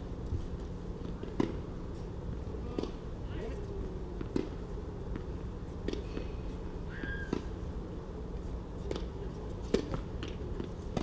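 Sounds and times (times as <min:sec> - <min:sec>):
racket hitting tennis ball: 0:04.2 - 0:06.3, 0:08.8 - 0:11.0.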